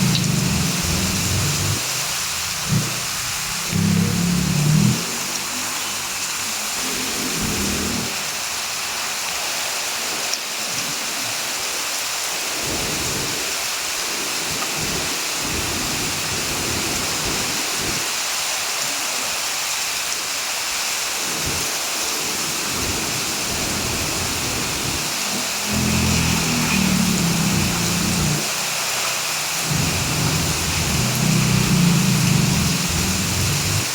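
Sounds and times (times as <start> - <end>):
low rumbles: 0.0 - 2.0, 25.7 - 28.5, 29.6 - 33.9
heavy rain hissing: 0.0 - 33.9.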